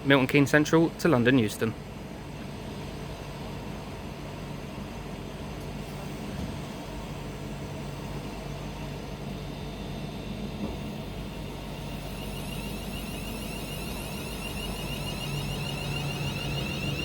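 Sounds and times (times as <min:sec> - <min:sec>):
electric train motors and wheels: 0:02.4 - 0:17.0
faint high whine: 0:07.4 - 0:17.0.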